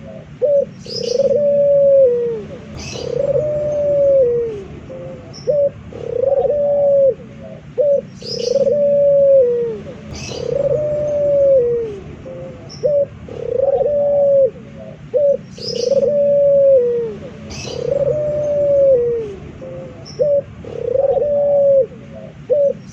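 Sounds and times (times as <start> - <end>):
small bird chirping: 0.0 - 1.6, 2.5 - 6.6, 7.4 - 9.0, 9.8 - 13.9, 14.7 - 16.4, 17.2 - 21.3
dove cooing: 0.0 - 22.9.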